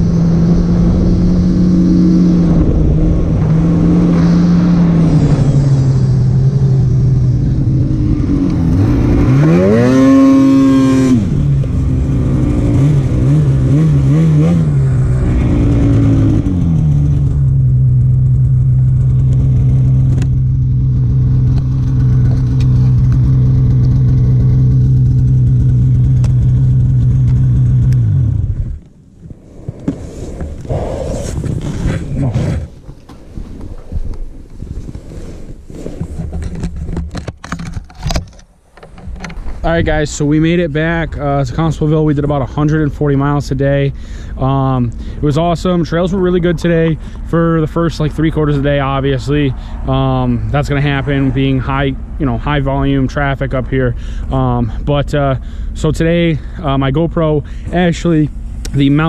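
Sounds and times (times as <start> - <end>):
snowmobile engine revving: 0.0 - 28.8.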